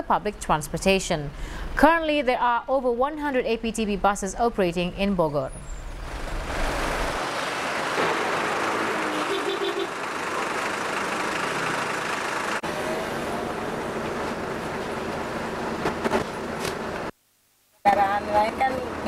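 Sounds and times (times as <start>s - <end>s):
road traffic hiss: 5.8s - 17.1s.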